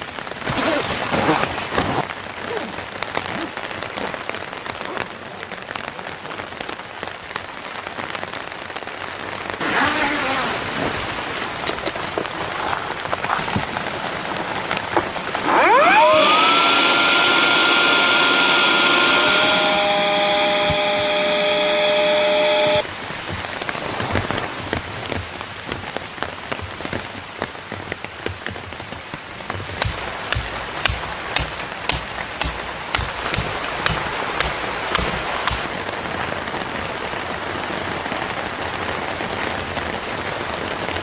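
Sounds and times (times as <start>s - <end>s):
rain falling on surfaces: 0.0s - 15.4s, 22.8s - 29.8s, 35.7s - 41.0s
loud pitched tone sweeping up: 15.6s - 22.8s.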